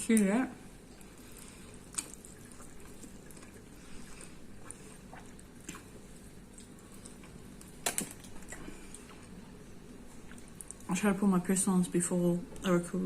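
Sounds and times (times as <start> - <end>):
wet clicks and smacks of eating: 0.9 - 9.4, 10.1 - 10.9.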